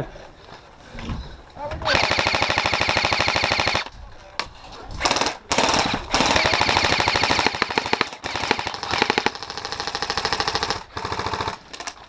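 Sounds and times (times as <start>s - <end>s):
airsoft guns firing full auto: 1.9s - 3.9s, 5.0s - 12.0s.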